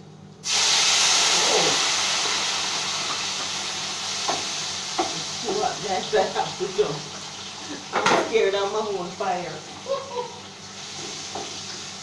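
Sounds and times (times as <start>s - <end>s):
food sizzling in hot oil: 0.4s - 12.0s.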